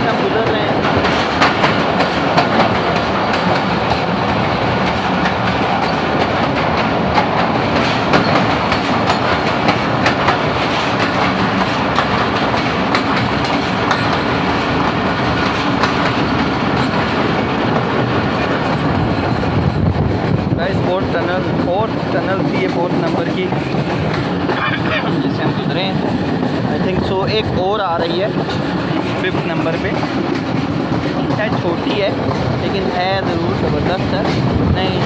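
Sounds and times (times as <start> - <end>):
train rumbling in tunnel: 0.0 - 35.0
wheels clacking on track: 0.0 - 35.0.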